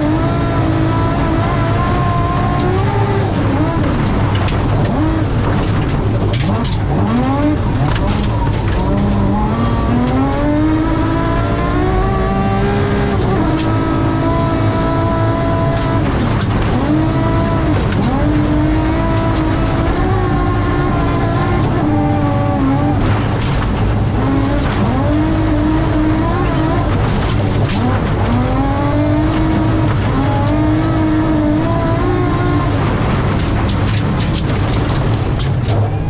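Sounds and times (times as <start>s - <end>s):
car engine revving at speed: 0.0s - 36.0s
tyres rumbling on gravel: 0.0s - 36.0s.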